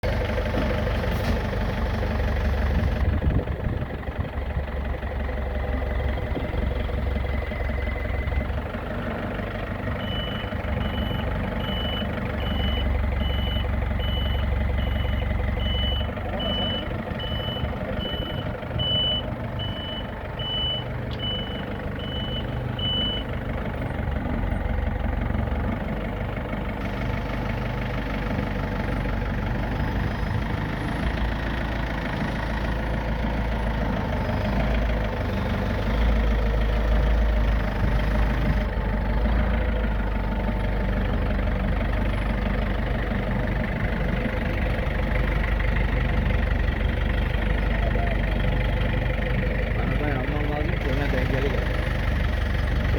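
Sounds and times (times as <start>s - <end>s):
engine running: 0.0s - 52.9s
reversing alarm beeping: 5.6s - 8.7s, 9.9s - 23.4s.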